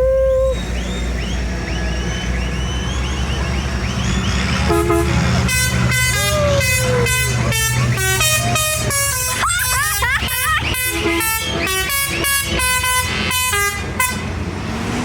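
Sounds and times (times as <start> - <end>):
engines running: 0.0 - 15.0
vehicle horns tooting: 0.5 - 14.4.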